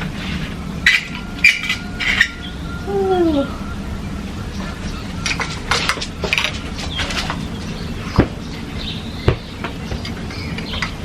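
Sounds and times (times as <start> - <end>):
steady low hum: 0.0 - 11.0
sharp knocks: 9.2 - 10.1.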